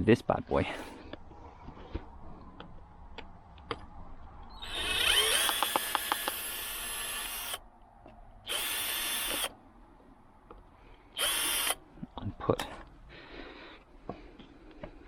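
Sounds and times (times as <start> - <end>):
power drill whining: 4.6 - 7.6, 8.5 - 9.5, 11.2 - 11.8.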